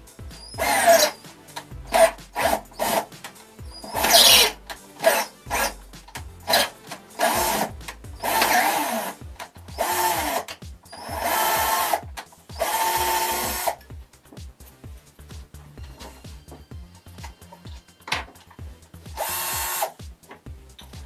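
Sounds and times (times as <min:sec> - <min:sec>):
cordless drill boring into steel: 0:00.4 - 0:01.2, 0:01.9 - 0:03.1, 0:03.7 - 0:05.8, 0:06.4 - 0:13.8, 0:19.1 - 0:20.0.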